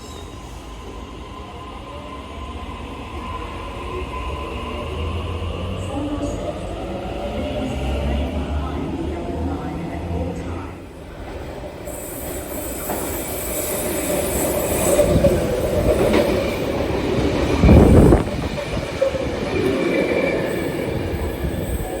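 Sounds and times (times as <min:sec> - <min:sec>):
train wheels rumbling on rails: 0:02.5 - 0:22.0.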